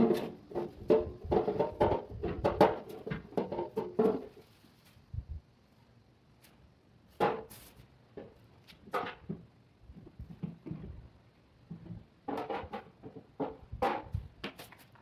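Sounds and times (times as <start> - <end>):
hard objects knocking: 0.0 - 4.3, 11.7 - 14.6.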